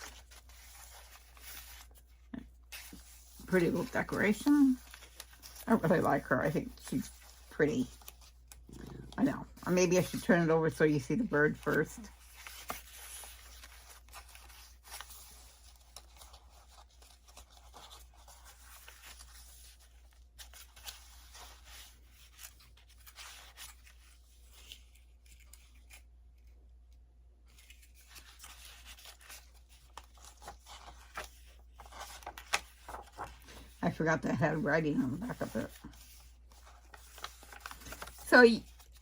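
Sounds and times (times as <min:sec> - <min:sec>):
paper rustling and tapping: 0:27.5 - 0:33.8, 0:35.4 - 0:39.0.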